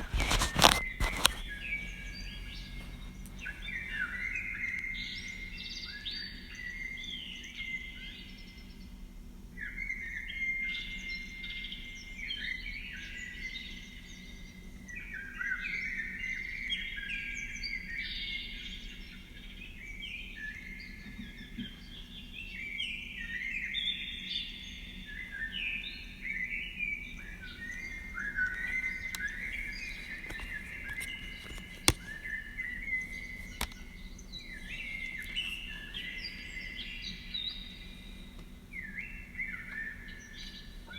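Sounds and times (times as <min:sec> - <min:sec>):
birds singing and chirping: 0:00.0 - 0:08.6, 0:20.1 - 0:40.9
faint low hum: 0:00.0 - 0:08.9, 0:26.3 - 0:40.9
sharp clicks: 0:27.9 - 0:36.1.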